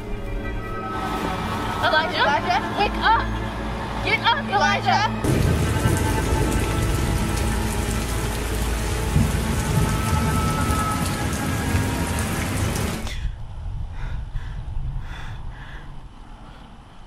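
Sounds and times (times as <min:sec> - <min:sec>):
low rumble: 0:05.1 - 0:17.0.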